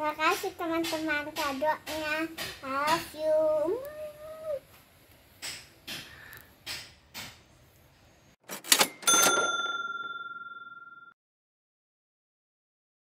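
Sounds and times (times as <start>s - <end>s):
bright bell-like chime: 8.8s - 11.2s.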